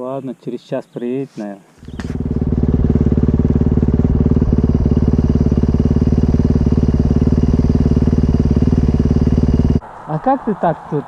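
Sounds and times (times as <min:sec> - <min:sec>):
dirt bike engine idling: 0:01.8 - 0:09.8.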